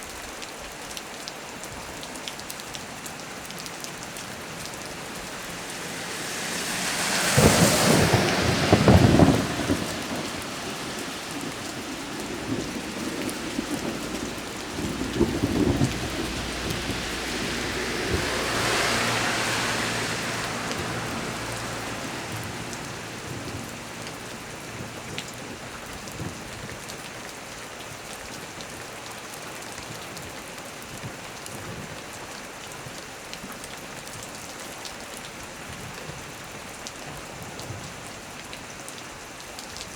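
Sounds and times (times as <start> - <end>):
heavy rain falling: 0.0 - 39.9
rolling thunder rumble: 4.0 - 26.6
thunderclap: 4.2 - 26.4.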